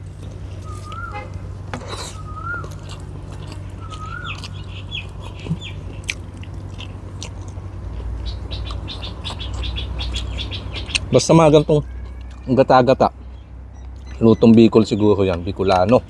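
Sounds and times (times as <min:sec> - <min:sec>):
low steady hum: 0:00.0 - 0:16.0
bird whistling call: 0:00.6 - 0:01.3, 0:02.0 - 0:02.8, 0:03.8 - 0:05.0
person chewing and lip-smacking: 0:01.8 - 0:10.2, 0:12.0 - 0:12.5.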